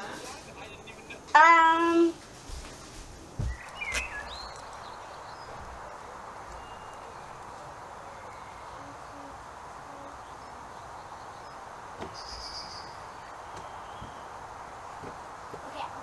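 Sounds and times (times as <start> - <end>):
outdoor background hiss: 0.0 - 16.0
bird hooting softly: 6.0 - 10.6.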